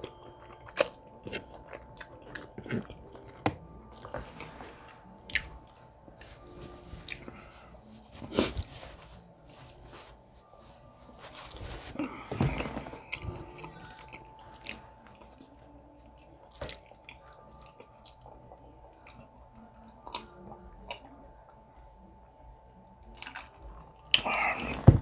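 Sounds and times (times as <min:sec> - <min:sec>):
chewing and mouth smacks: 0:00.0 - 0:04.2, 0:05.2 - 0:05.8, 0:13.1 - 0:19.2
paper napkin rustling: 0:06.2 - 0:13.4.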